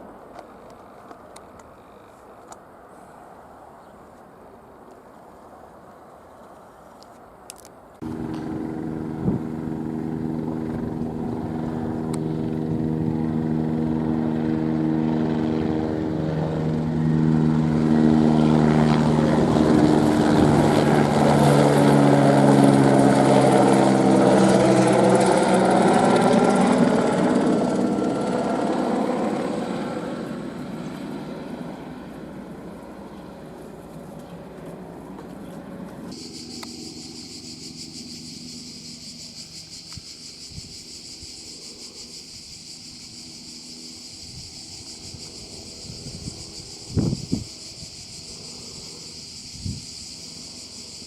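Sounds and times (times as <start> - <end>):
helicopter flying past: 8.0 - 51.0.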